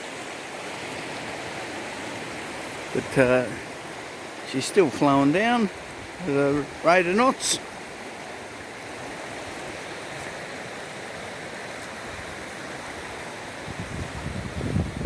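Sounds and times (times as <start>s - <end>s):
stream rushing: 0.0s - 15.0s
wind buffeting microphone: 12.0s - 15.0s.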